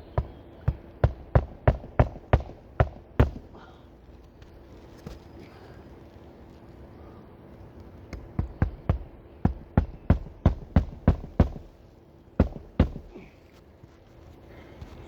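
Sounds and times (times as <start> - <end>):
hammer striking nails: 0.1 - 3.4, 8.2 - 11.7, 12.4 - 13.1.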